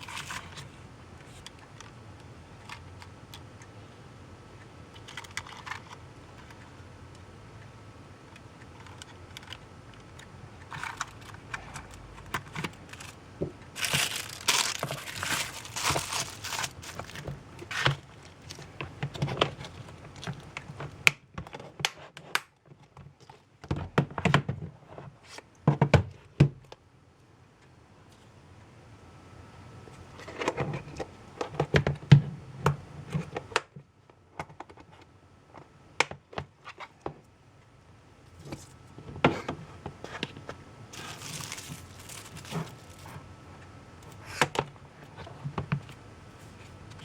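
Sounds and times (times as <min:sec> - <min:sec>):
packaging crinkling: 0:08.8 - 0:20.6, 0:40.9 - 0:43.2.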